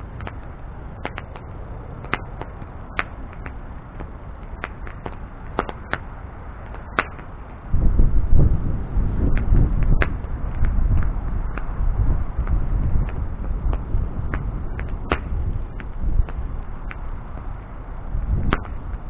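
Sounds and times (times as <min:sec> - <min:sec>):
bonfire crackling and popping: 0:00.0 - 0:19.0
loud low rumbling: 0:07.5 - 0:19.0.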